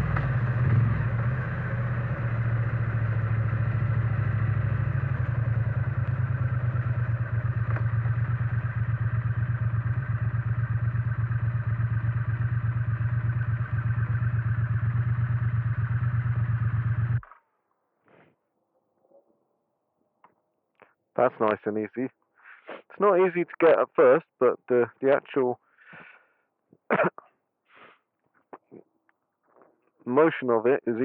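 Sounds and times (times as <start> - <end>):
motorcycle engine idling: 0.0 - 17.3.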